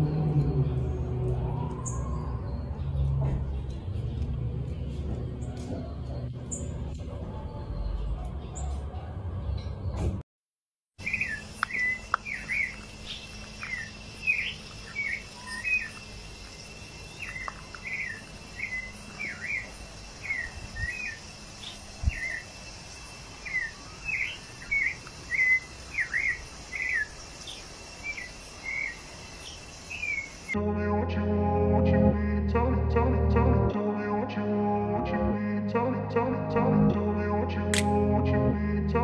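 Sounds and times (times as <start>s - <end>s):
small birds chirping: 11.0s - 30.6s.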